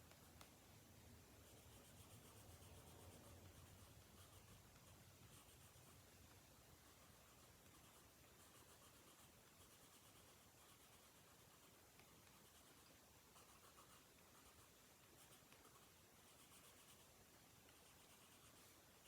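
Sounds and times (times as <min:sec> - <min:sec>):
pencil scratching on paper: 0:01.4 - 0:06.0, 0:06.8 - 0:18.8.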